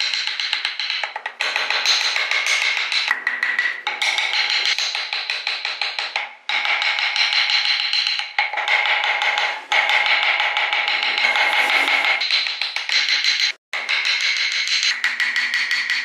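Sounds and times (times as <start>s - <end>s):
high whine: 10.8s - 12.3s.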